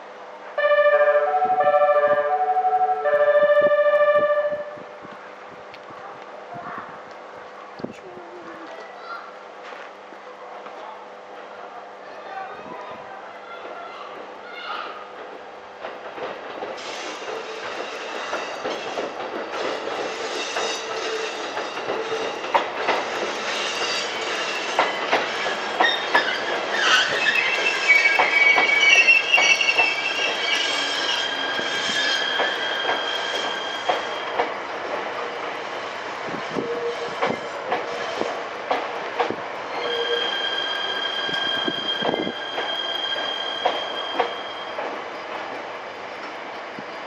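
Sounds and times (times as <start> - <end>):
train wheels clacking over joints: 15.1 - 46.4
high wheel squeal: 16.8 - 22.4, 23.3 - 34.4, 39.7 - 44.8.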